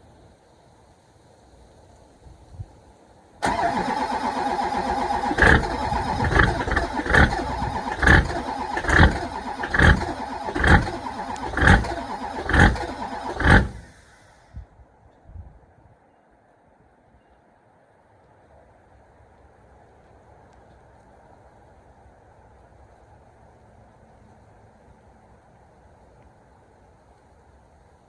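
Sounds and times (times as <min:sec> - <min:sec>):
engine starter cranking: 0:03.4 - 0:14.2.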